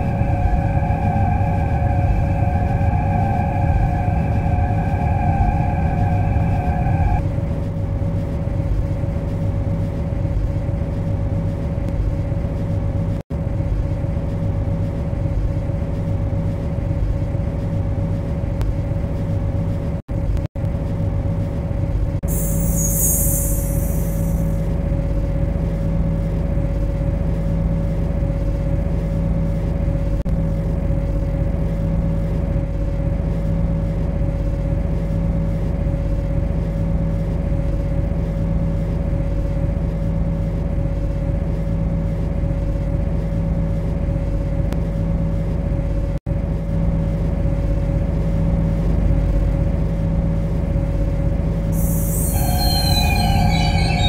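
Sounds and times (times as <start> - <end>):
train rumble and electrical hum: 0.0 - 54.0
hiss of air: 22.3 - 24.5, 51.8 - 54.0.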